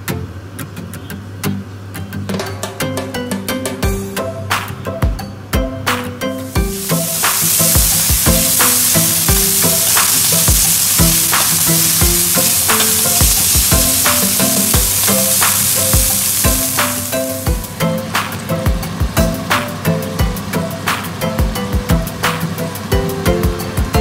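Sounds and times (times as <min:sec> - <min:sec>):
background music with steady beat: 0:02.2 - 0:24.0
meat sizzling in a frying pan: 0:06.5 - 0:17.7.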